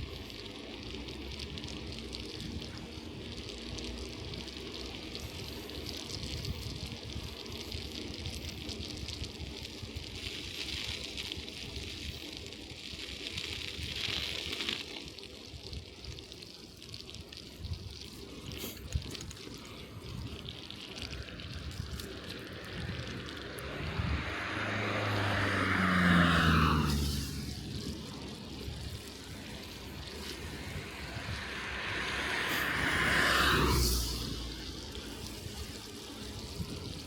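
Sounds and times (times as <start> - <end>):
bicycle tyres rolling through slush: 0.0 - 37.0
car passing on wet road: 18.5 - 37.0.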